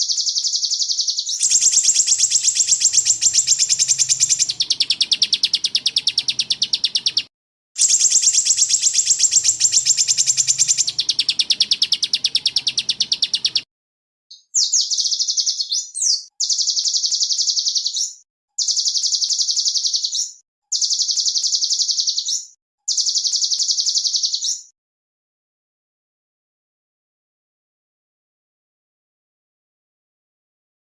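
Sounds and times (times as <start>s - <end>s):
songbird high-pitched trills: 0.0s - 13.6s, 14.3s - 24.7s.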